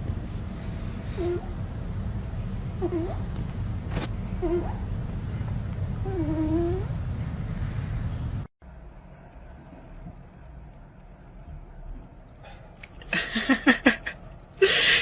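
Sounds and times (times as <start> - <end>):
cricket chirping: 8.6 - 14.8.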